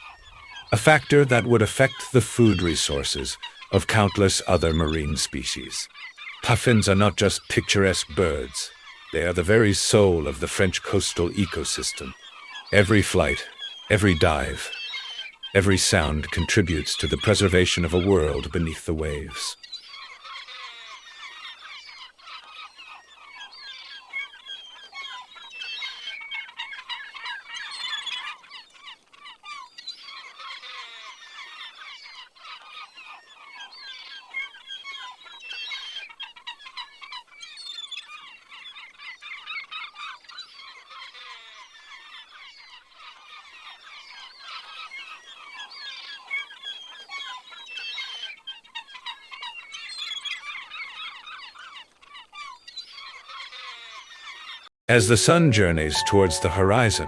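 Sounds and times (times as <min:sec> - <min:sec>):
chorus of animal calls: 0:00.0 - 0:28.2.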